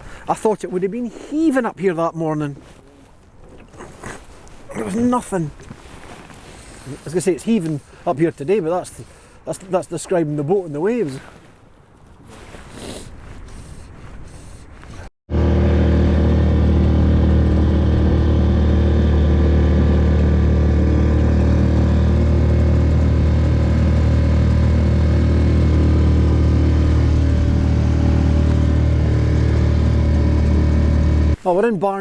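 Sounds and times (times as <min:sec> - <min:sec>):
outboard motor droning: 0:15.3 - 0:31.4.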